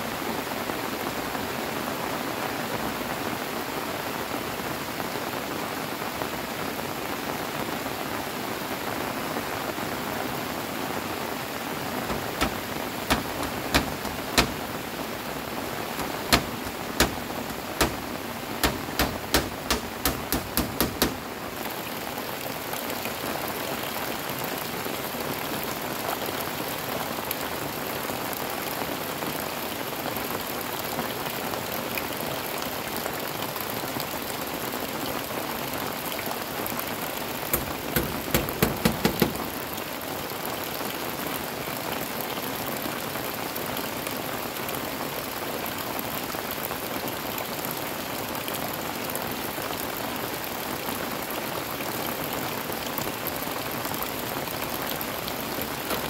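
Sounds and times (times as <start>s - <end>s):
heavy rain falling: 0.0s - 56.0s
hammer blows on bamboo: 12.0s - 21.4s, 37.5s - 39.6s.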